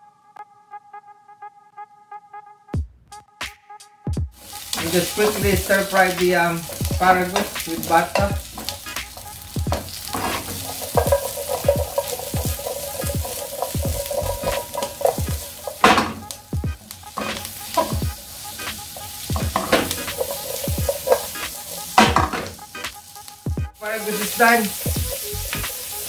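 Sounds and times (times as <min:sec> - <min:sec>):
spatula scraping a pan: 0:04.4 - 0:22.8
vegetables sizzling in butter: 0:04.4 - 0:26.0.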